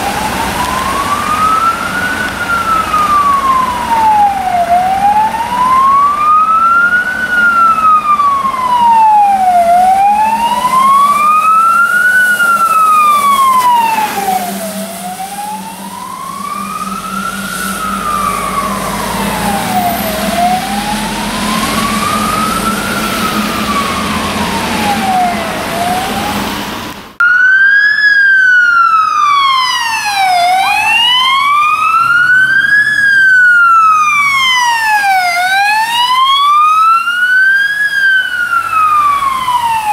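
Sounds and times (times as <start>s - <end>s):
truck engine running: 0.0s - 27.2s
faster siren: 0.0s - 39.9s
fire engine siren wailing: 0.0s - 39.9s.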